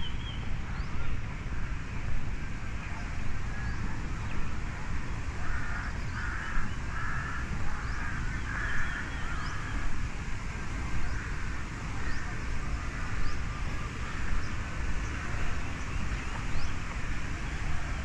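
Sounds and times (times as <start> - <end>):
crow cawing: 5.4 - 9.6.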